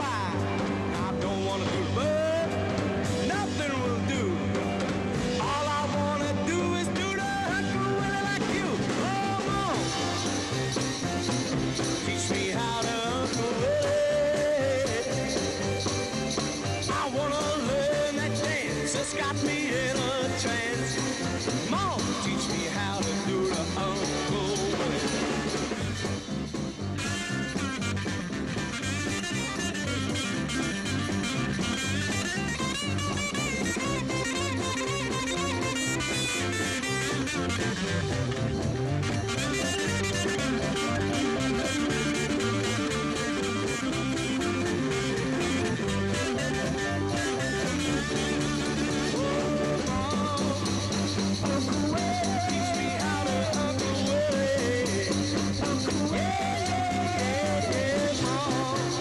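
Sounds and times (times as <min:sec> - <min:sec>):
person singing: 0:00.0 - 0:25.9, 0:39.5 - 0:59.0
beat-group pop music: 0:00.0 - 0:59.0
rock band with electric guitar: 0:00.0 - 0:59.0.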